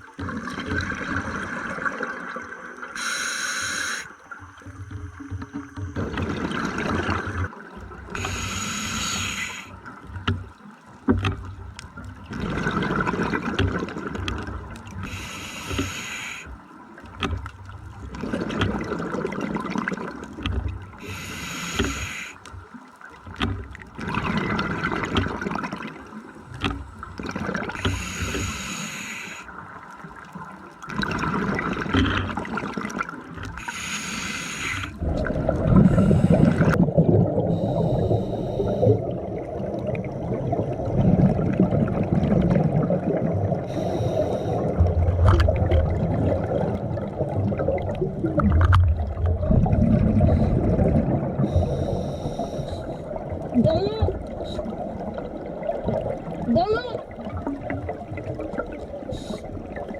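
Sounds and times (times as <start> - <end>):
regulator hissing on inhale: 2.9 - 4.8, 8.1 - 9.8, 15.0 - 16.6, 21.0 - 22.6, 27.8 - 29.6, 33.6 - 35.0, 35.7 - 36.8, 37.4 - 39.1, 43.6 - 44.9, 51.4 - 53.2, 59.0 - 59.6
bubbles bursting on exhale: 33.6 - 53.6.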